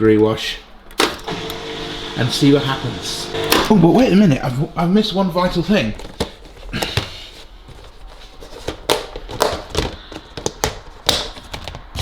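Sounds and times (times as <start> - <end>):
objects knocking and clicking: 7.7 - 12.0.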